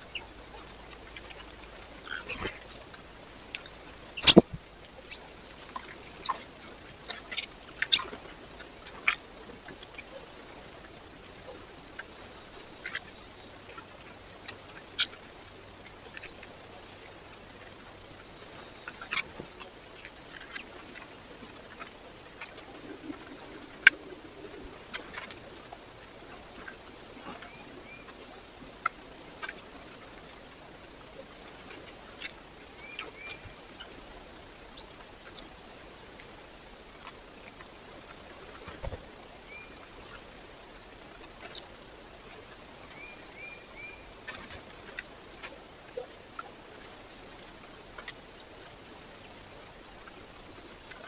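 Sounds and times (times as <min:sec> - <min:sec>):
short high bird chirps: 0:04.2 - 0:04.4.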